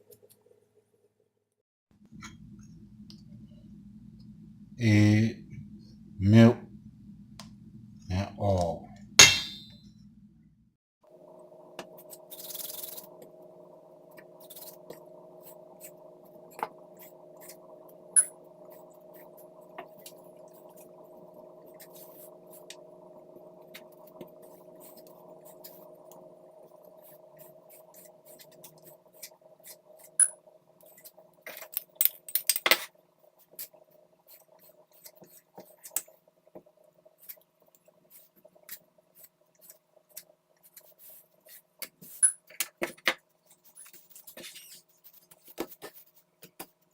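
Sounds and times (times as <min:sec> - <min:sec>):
steady hum: 0:02.1 - 0:10.5.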